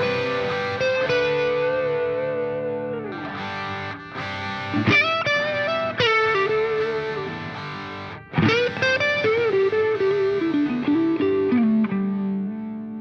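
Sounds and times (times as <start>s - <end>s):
distorted electric guitar melody: 0.0s - 13.0s.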